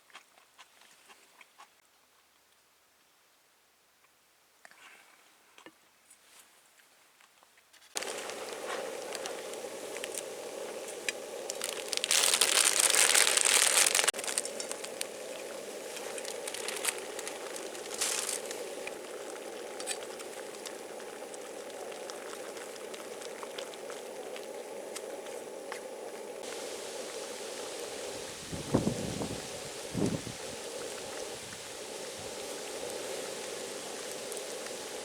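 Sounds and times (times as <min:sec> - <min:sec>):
loud hissing rush: 0:08.0 - 0:23.2, 0:24.0 - 0:35.0
crackling and small clicks: 0:15.9 - 0:25.9.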